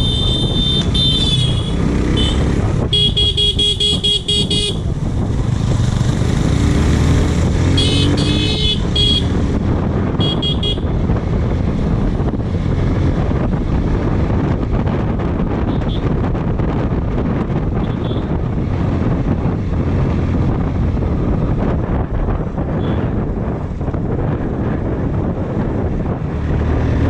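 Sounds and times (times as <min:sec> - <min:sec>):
vehicle horn beeping: 0:00.0 - 0:04.8, 0:07.8 - 0:09.4, 0:10.2 - 0:10.9, 0:22.8 - 0:23.0
motorcycle rumbling: 0:00.0 - 0:27.0.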